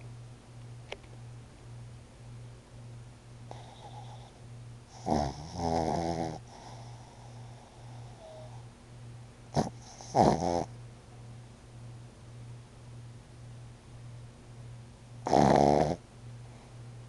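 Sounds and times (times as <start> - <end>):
dog snorting: 3.5 - 8.6, 9.5 - 10.7, 15.2 - 16.0
dog snoring: 3.5 - 8.7, 9.5 - 10.7, 15.2 - 16.0.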